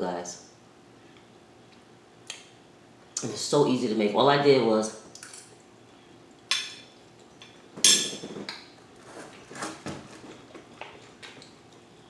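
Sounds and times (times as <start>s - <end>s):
cutlery clinking on a plate: 6.5s - 8.5s.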